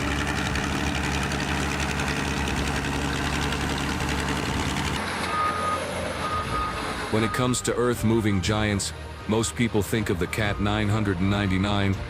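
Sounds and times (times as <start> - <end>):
tractor diesel engine running: 0.0 - 8.7.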